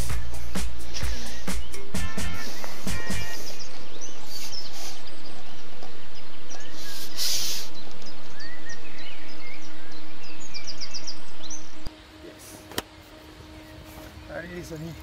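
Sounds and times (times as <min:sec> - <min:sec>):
rushing outdoor noise: 0:00.0 - 0:15.0
small birds chirping: 0:00.0 - 0:15.0
brief louder hiss: 0:06.8 - 0:07.8.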